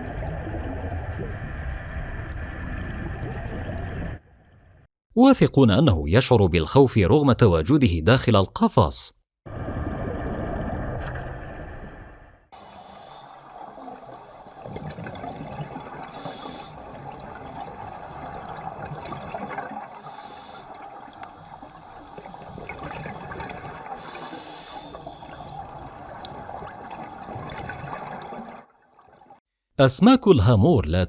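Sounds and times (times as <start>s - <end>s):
underwater water noise: 0.0s - 4.9s, 9.5s - 29.4s.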